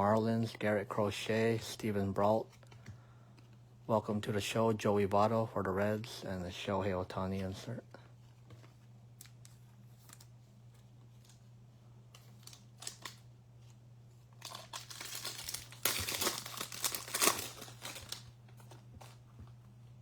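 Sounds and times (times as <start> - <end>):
steady low hum: 0.0 - 20.0
plastic wrapper crinkling and tearing: 12.1 - 19.2.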